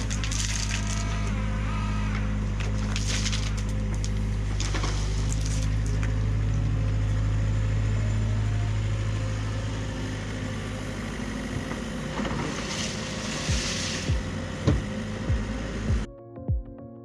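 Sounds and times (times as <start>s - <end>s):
construction machine engine running: 0.0s - 16.1s.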